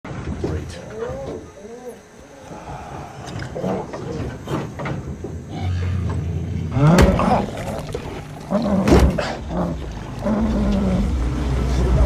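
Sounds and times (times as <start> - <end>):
animal-like growling calls: 0.7 - 12.0
rising pitched cries: 0.9 - 4.7
low steady rumble: 1.7 - 12.0.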